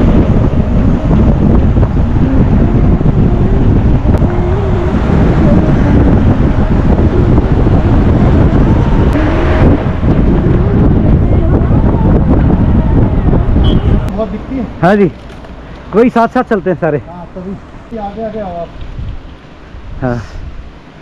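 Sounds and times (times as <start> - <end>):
motorcycle engine roar: 0.0 - 14.3
wind buffeting microphone: 0.0 - 17.1, 17.8 - 20.8.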